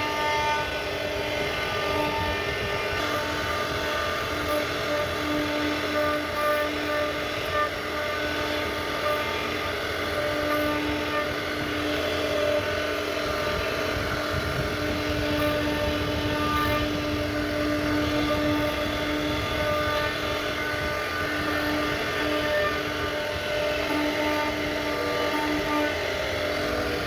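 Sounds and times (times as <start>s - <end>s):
router spindle whining: 0.0s - 27.0s.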